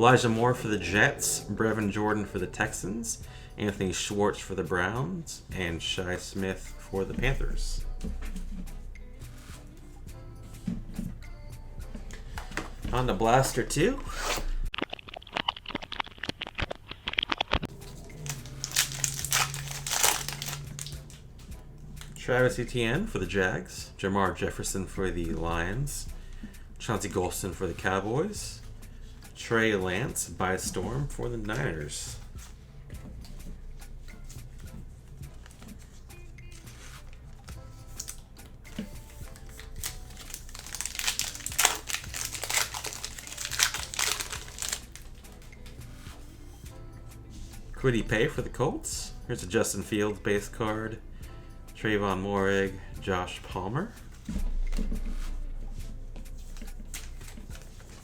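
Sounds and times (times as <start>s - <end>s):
wrapping crackling: 14.7s - 21.2s, 36.6s - 45.4s, 56.4s - 58.0s
foil wrappers crinkling and tearing: 14.8s - 21.2s, 37.8s - 45.4s.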